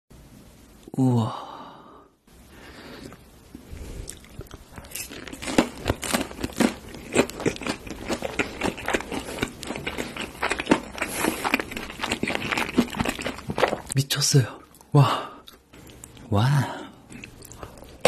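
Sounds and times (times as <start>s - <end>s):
chewing crunchy food: 4.0s - 14.0s, 14.6s - 16.3s, 17.0s - 18.0s.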